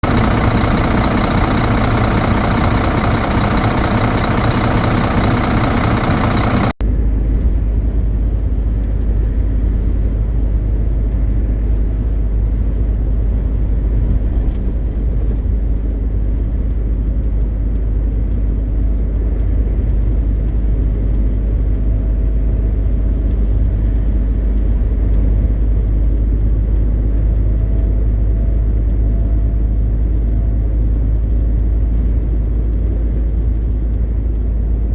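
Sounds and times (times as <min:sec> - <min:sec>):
diesel truck engine rumbling: 0:00.0 - 0:06.8
road noise: 0:00.0 - 0:06.8.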